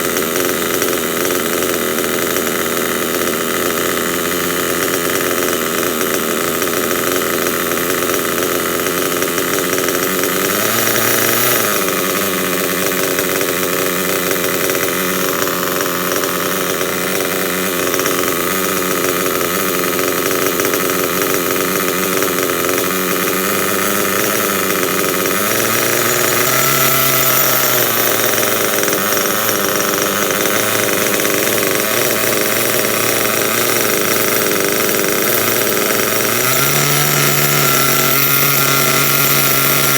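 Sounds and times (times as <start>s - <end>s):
small rc car engine idling: 0.0s - 39.9s.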